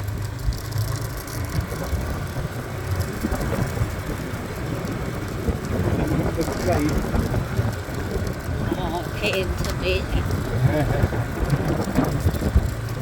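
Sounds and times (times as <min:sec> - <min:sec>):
jolts on rough dirt track: 0:00.0 - 0:13.0
motorbike engine running: 0:00.0 - 0:13.0.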